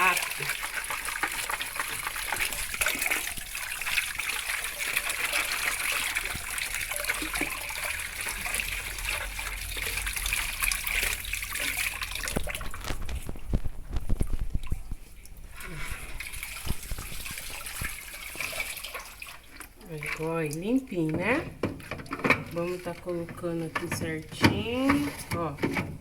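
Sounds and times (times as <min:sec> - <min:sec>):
running water splashing: 0:00.0 - 0:26.0.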